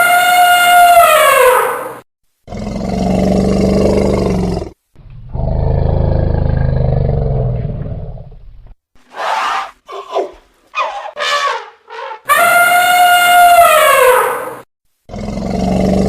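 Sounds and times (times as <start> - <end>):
elephant trumpeting: 0.0 - 2.0, 9.1 - 14.6
elephant roaring: 2.5 - 8.2, 15.1 - 16.0.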